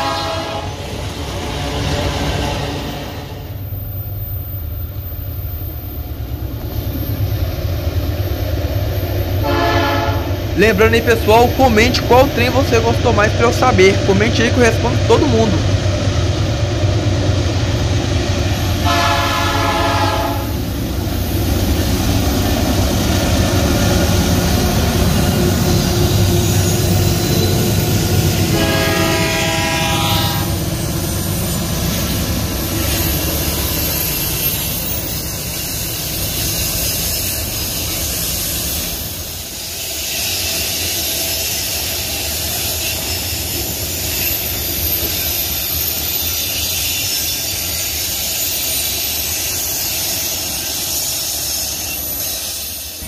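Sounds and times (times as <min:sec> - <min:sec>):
train horn blasts: 0:00.0 - 0:00.8, 0:01.4 - 0:03.4, 0:09.4 - 0:10.4, 0:18.8 - 0:20.6, 0:28.4 - 0:30.6
diesel locomotives running: 0:00.0 - 0:53.0
wagons rumbling on rails: 0:00.0 - 0:53.0.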